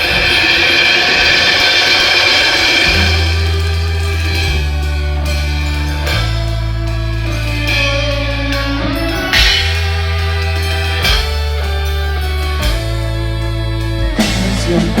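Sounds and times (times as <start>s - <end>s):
sharp drum hits: 0.0s - 6.8s, 9.2s - 11.9s
guitar: 0.0s - 15.0s
live band playing: 0.0s - 15.0s
sustained bass notes: 0.0s - 15.0s.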